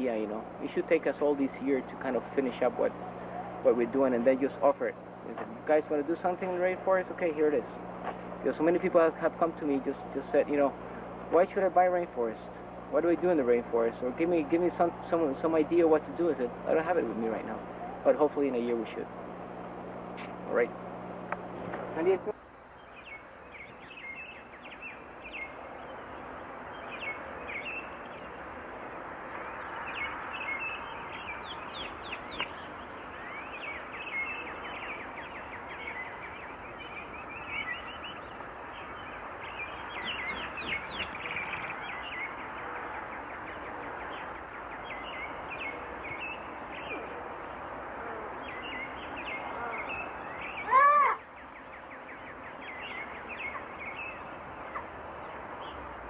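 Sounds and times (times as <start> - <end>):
birds chirping and calling: 0.0 - 19.2, 21.4 - 28.4, 29.0 - 56.0
forest ambience hiss: 0.0 - 56.0
loud short bird call: 49.4 - 51.3.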